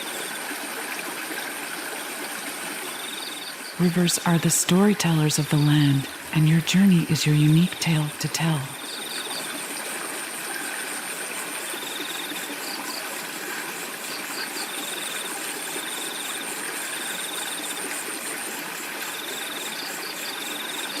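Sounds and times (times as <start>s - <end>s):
flowing river: 0.0s - 21.0s
crickets chirping: 2.9s - 3.9s.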